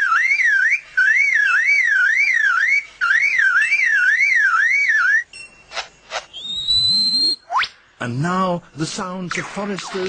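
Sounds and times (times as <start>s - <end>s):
bird mimicking a car alarm: 0.0s - 5.3s.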